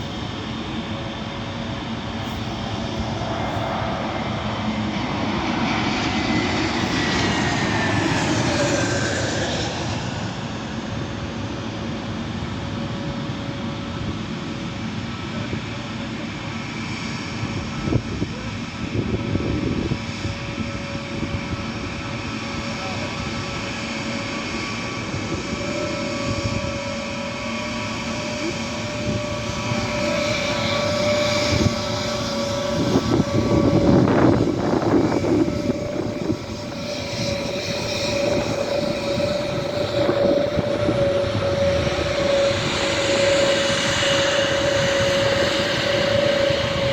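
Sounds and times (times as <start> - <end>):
jet engines whining: 0.0 - 46.9.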